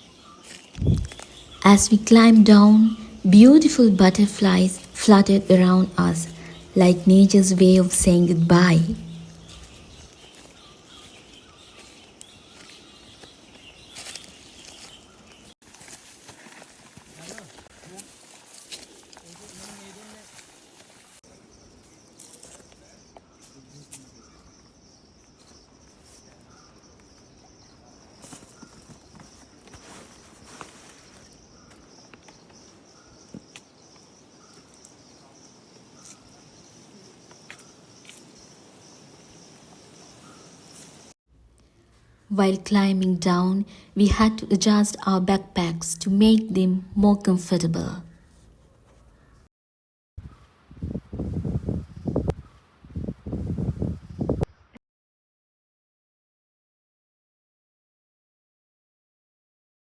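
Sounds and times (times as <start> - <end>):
insects chirring: 15.7 - 41.1.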